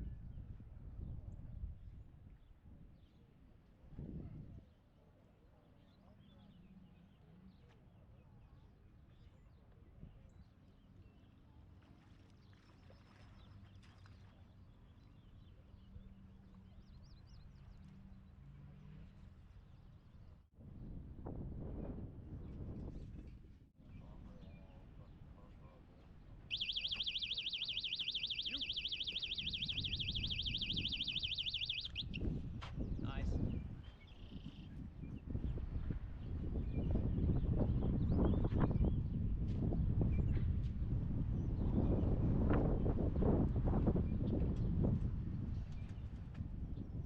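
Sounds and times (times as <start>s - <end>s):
electronic alarm tone warbling: 26.5s - 32.2s
small bird chirps: 26.5s - 32.2s.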